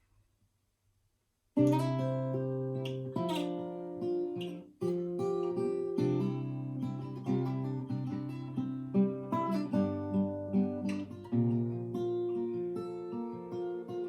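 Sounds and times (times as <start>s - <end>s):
fingerpicked acoustic guitar: 1.6s - 14.0s.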